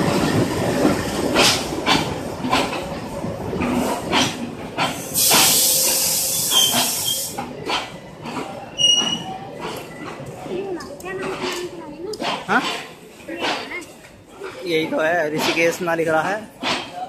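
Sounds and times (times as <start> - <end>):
train rolling past: 0.0 - 17.0
loud hiss: 5.1 - 7.4.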